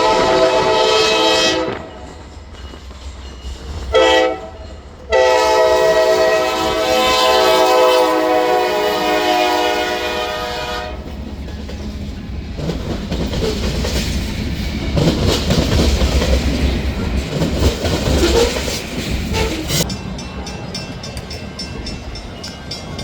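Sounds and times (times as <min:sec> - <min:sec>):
train horn chord: 0:00.0 - 0:02.0, 0:03.9 - 0:11.0, 0:19.3 - 0:19.8
train rumbling past: 0:00.0 - 0:23.0
wheels clattering over rail joints: 0:11.0 - 0:23.0
wheel squeals: 0:18.0 - 0:19.8.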